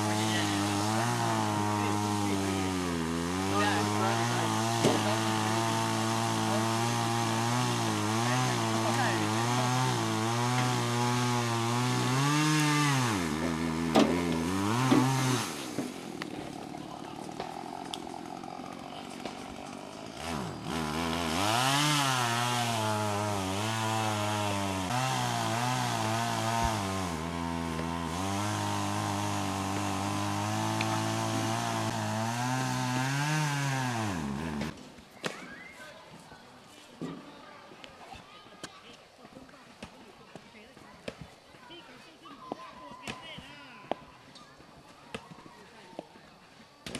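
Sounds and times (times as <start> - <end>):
small petrol engine running: 0.0 - 34.7.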